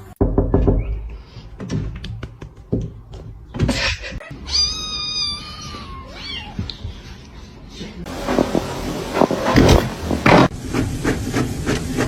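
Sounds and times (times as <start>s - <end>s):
cat meowing: 4.4s - 6.7s.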